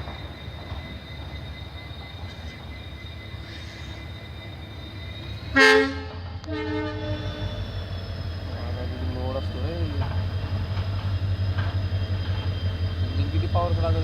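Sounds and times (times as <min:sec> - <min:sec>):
diesel locomotive engine rumbling: 0:00.0 - 0:14.0
locomotive horn blasts: 0:05.5 - 0:07.6.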